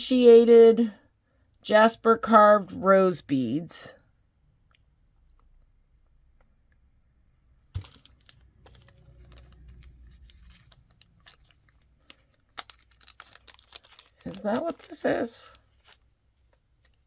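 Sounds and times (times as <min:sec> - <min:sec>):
packaging clicks and rustling: 0:07.8 - 0:17.0.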